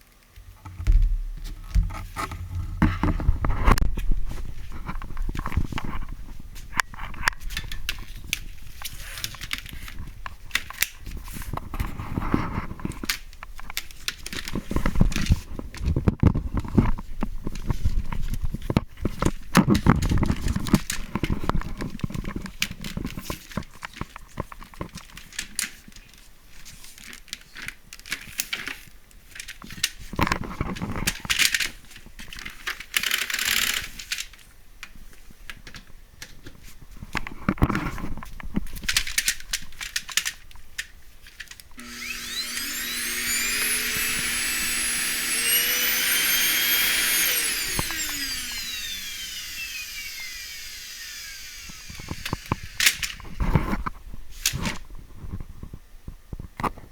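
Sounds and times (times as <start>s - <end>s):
plastic parts clicking and knocking: 26.9s - 41.8s, 46.2s - 54.8s.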